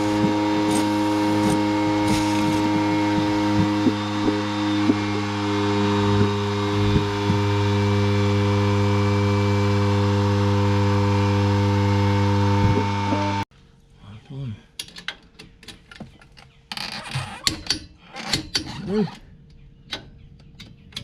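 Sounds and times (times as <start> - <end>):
machine hum: 0.0 - 13.5.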